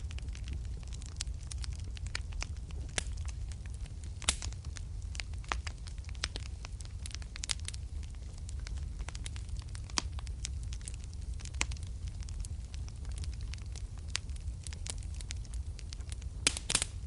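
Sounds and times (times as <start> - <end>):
low rumble of flames: 0.0 - 17.0
wood fire crackling and popping: 0.0 - 17.0.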